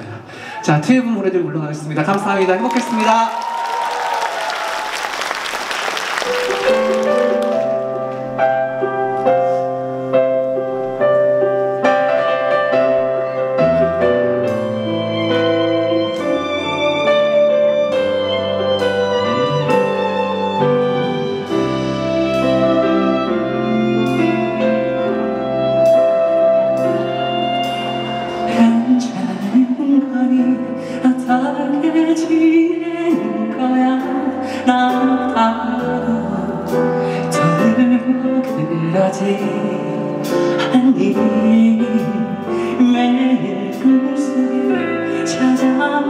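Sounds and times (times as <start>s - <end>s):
audience applause: 2.1s - 7.9s
live band playing a slow ballad: 3.4s - 46.0s
slow piano chords: 4.4s - 46.0s.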